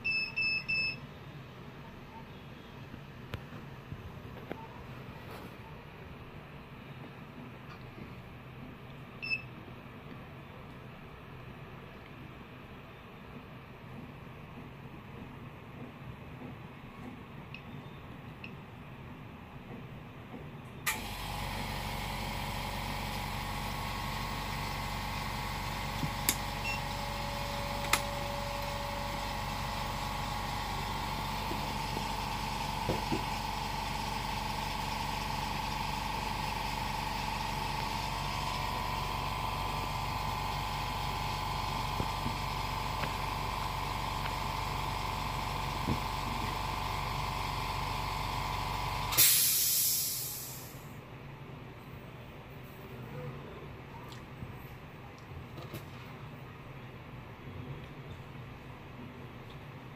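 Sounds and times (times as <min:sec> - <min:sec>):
electric machine humming: 0:20.9 - 0:49.2.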